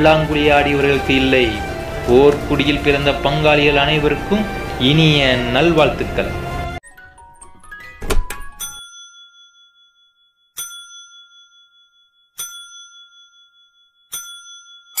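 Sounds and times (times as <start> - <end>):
bright bell dinging: 8.5 - 15.0.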